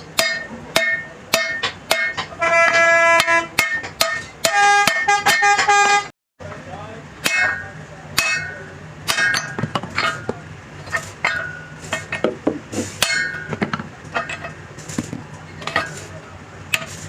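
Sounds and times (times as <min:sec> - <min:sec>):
steady low hum: 0:00.0 - 0:17.0
hammer blows on steel: 0:00.2 - 0:06.1.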